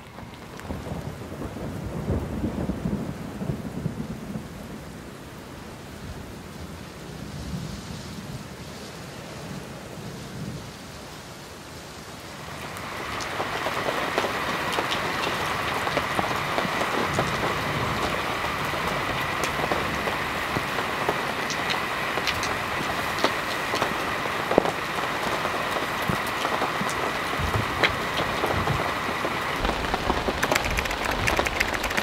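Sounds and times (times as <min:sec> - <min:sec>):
distant thunder rumble: 0:00.0 - 0:05.2, 0:12.9 - 0:32.0
steady rain with drop hits: 0:00.0 - 0:32.0.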